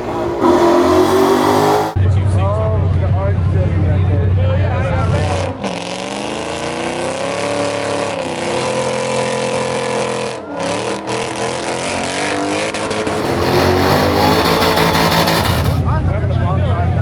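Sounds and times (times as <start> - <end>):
car engines revving at rev limiter: 0.0 - 2.0, 5.5 - 15.9.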